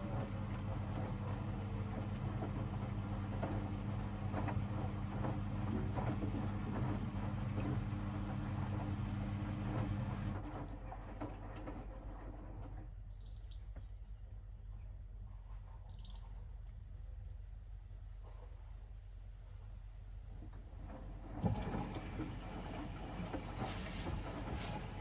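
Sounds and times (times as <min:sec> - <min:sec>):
washing machine motor humming: 0:00.0 - 0:12.2, 0:20.6 - 0:25.0
laundry tumbling with soft knocks: 0:20.7 - 0:25.0.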